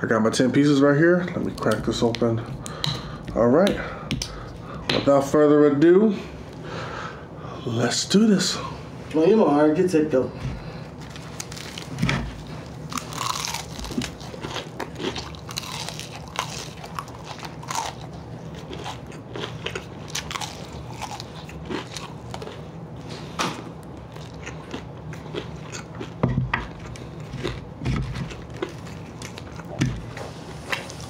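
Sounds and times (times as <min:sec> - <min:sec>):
crunching fried chicken: 0:11.0 - 0:29.8
chewing: 0:11.1 - 0:29.8.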